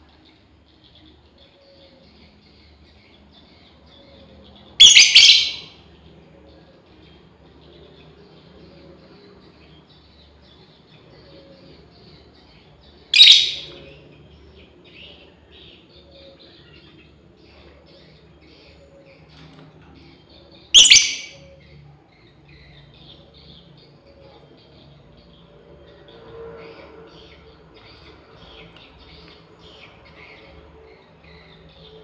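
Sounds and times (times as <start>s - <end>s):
lovebirds chattering: 4.8s - 5.7s, 9.5s - 24.1s
shrill lovebird call: 4.8s - 5.7s, 13.2s - 13.9s, 20.7s - 21.5s.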